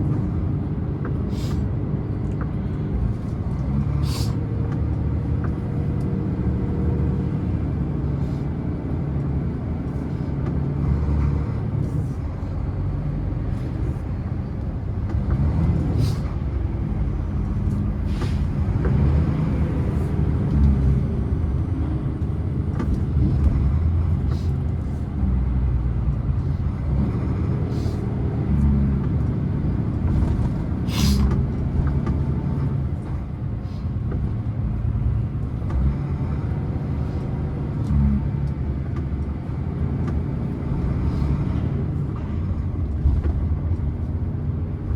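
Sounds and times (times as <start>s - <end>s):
truck diesel engine rumbling: 0.0s - 44.9s
short air hisses: 1.3s - 1.6s, 4.0s - 4.4s, 30.9s - 31.3s.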